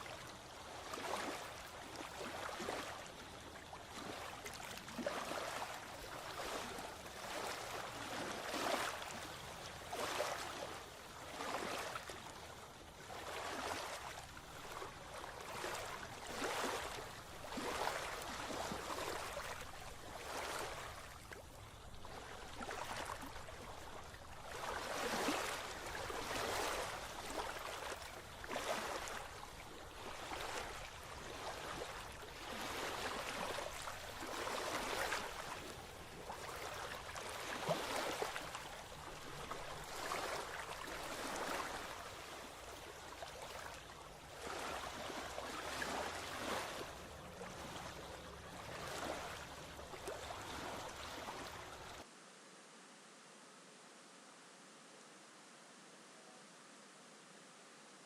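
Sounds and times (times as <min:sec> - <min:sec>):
rushing water: 0:00.0 - 0:52.2.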